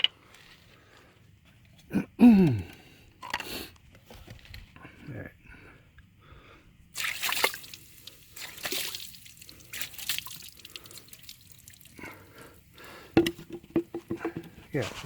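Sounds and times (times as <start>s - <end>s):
water dripping and splattering: 7.0s - 13.0s
water splashing on metal exhaust: 7.0s - 14.0s.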